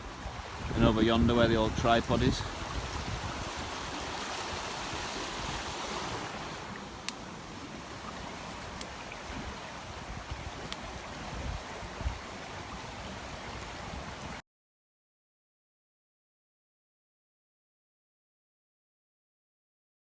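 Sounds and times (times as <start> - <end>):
fast-flowing river water: 0.0 - 14.4
wind rumbling on microphone: 0.0 - 14.4.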